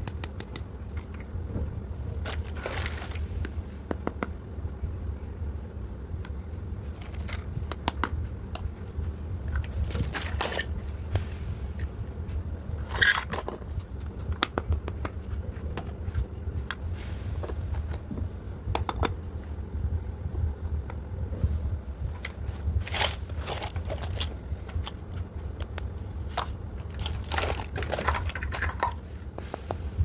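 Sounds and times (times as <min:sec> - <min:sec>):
steady low hum: 0:00.0 - 0:30.0
packaging crinkling: 0:02.2 - 0:03.2, 0:09.6 - 0:10.8, 0:22.8 - 0:29.0.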